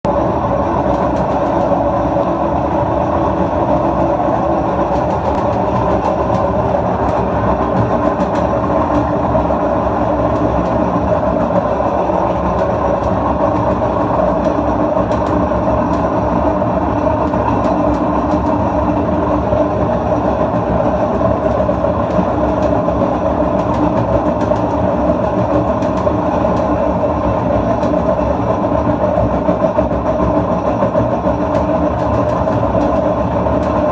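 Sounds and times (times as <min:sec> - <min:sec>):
washing machine drone: 0:00.0 - 0:33.9
rattling clicks: 0:14.4 - 0:16.2.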